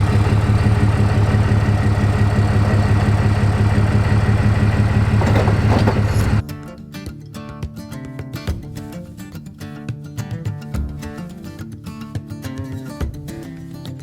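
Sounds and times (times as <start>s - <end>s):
large engine running: 0.0s - 6.4s
acoustic guitar music: 6.4s - 14.0s.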